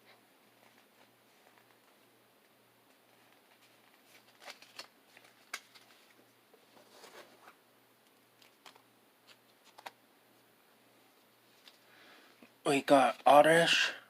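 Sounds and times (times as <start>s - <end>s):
cards and wrapper rustling: 2.9s - 7.6s, 8.4s - 10.0s.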